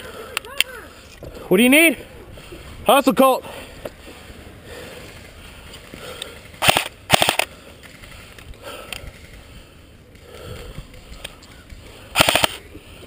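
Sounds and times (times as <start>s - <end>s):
airsoft rifle full-auto bursts: 6.6s - 7.5s, 12.1s - 12.6s
fainter single shots: 6.6s - 7.5s, 12.2s - 12.6s.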